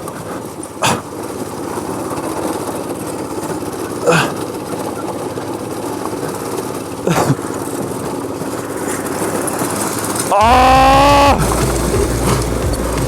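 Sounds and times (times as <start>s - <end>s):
go-kart engine running: 0.0s - 13.0s
loud held tone: 10.3s - 13.0s
heavy low rumble: 10.4s - 13.0s.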